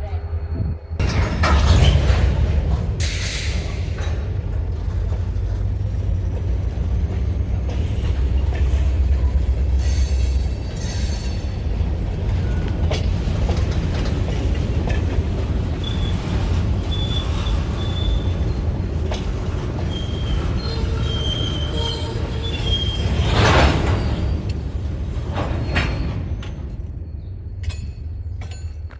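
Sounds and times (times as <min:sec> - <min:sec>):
train wheels rumbling on rail: 0:00.0 - 0:28.9
high-pitched wheel squeals: 0:15.8 - 0:18.8, 0:19.8 - 0:24.6.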